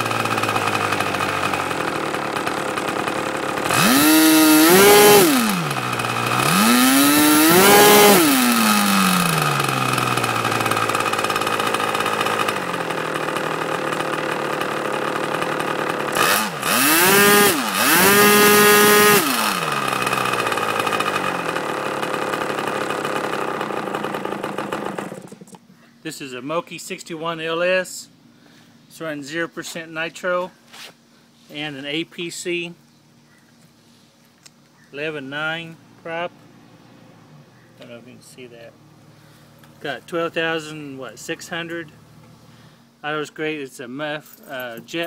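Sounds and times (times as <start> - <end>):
model glow engine revving and idling: 0.0 - 25.6.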